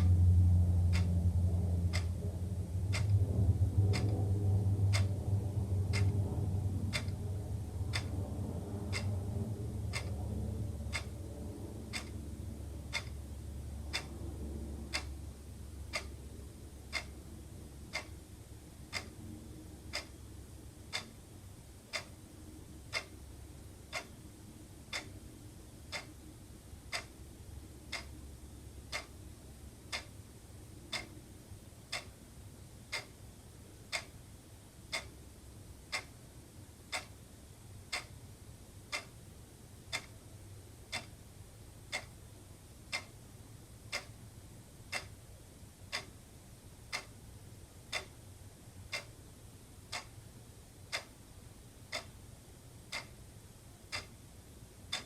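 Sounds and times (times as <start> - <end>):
low rumble: 0.0 - 18.1
wall clock ticking: 0.0 - 33.2, 33.8 - 34.2, 34.8 - 36.2, 36.8 - 39.2, 39.8 - 55.0.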